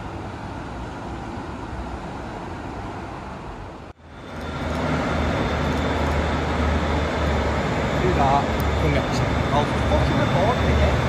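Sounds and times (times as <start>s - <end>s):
train running noise: 0.0s - 11.0s
faint high whine: 3.5s - 11.0s.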